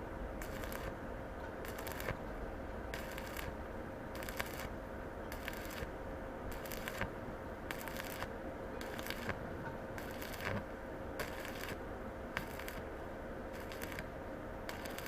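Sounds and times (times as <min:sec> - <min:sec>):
faint steady hum: 0:00.0 - 0:15.0
sharp welding pops: 0:00.4 - 0:01.0, 0:01.6 - 0:02.2, 0:03.0 - 0:03.6, 0:04.2 - 0:04.7, 0:05.3 - 0:05.9, 0:06.5 - 0:07.1, 0:07.7 - 0:09.4, 0:10.0 - 0:10.6, 0:11.2 - 0:11.8, 0:12.4 - 0:12.9, 0:13.6 - 0:14.1, 0:14.7 - 0:15.0
welding arc crackling and sizzling: 0:00.4 - 0:01.0, 0:01.6 - 0:02.2, 0:02.9 - 0:12.9, 0:13.5 - 0:15.0.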